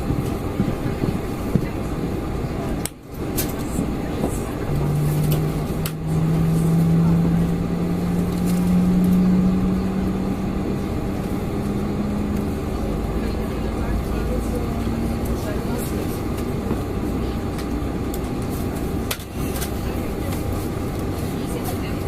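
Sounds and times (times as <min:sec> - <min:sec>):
airplane cabin rush: 0:00.0 - 0:22.0
hum rising in pitch: 0:04.6 - 0:15.2.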